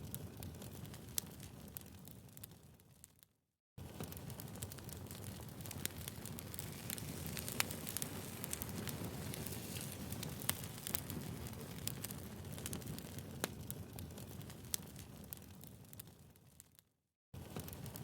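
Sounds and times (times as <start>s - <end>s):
fire crackles and pops: 0.0s - 18.0s
fire low rush: 5.7s - 12.2s.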